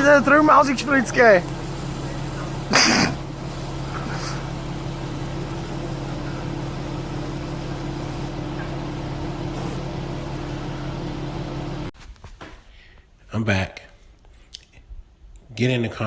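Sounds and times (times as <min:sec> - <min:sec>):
low motor hum: 0:00.0 - 0:12.0
constant hiss: 0:00.0 - 0:16.0.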